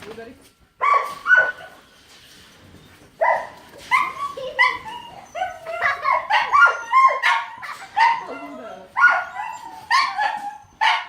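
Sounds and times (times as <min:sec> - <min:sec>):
dog barking in high yips: 0:00.8 - 0:01.8, 0:03.2 - 0:11.0.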